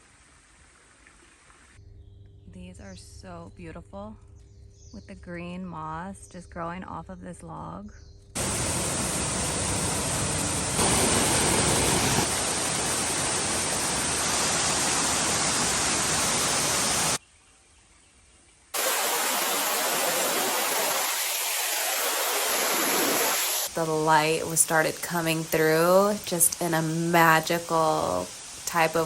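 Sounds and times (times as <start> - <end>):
waterfall roaring: 8.4 - 17.2, 18.8 - 29.0.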